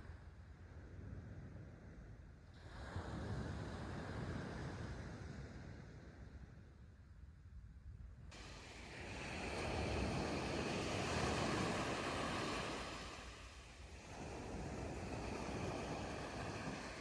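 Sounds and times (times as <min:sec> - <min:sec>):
wind rumble on microphone: 0:00.0 - 0:17.0
sea waves breaking: 0:08.4 - 0:17.0.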